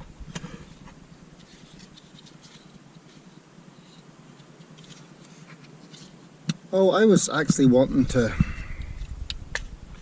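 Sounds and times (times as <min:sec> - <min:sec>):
faint scratching and rustling: 0:00.0 - 0:06.4.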